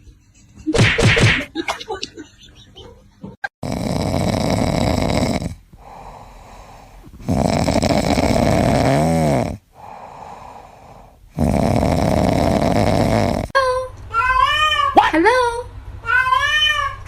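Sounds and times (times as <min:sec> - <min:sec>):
pet snoring: 0:03.6 - 0:13.6.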